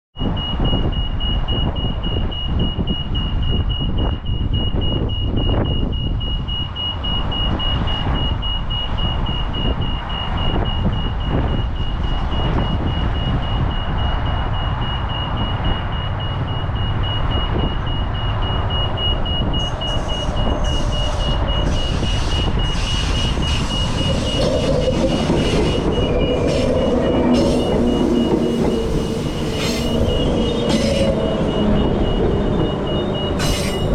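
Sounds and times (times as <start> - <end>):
rapid high beeping: 0.4 - 33.9
low rumble: 3.5 - 33.9
train whining tones: 6.6 - 33.9
train clattering and hiss: 20.0 - 31.2, 33.4 - 33.9.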